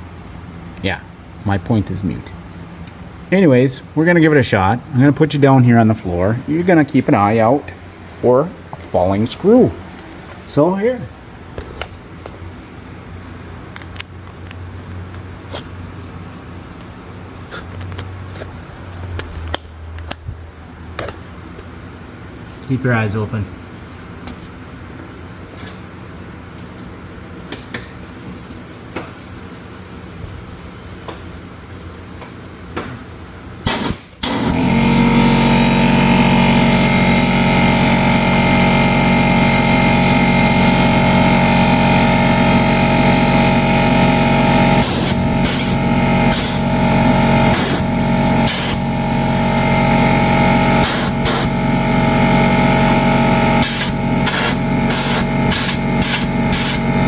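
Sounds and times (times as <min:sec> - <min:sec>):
air blow gun hissing blast: 0:33.6 - 0:35.1, 0:43.4 - 0:57.0.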